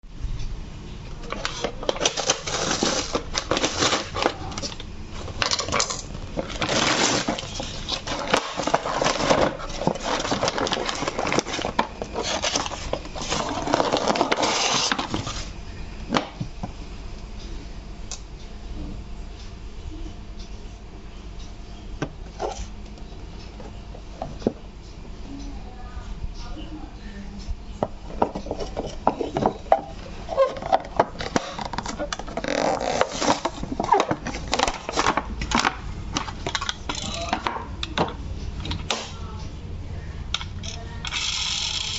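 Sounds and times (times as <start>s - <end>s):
toy packaging rustling and scraping: 1.2s - 15.6s, 28.1s - 37.5s.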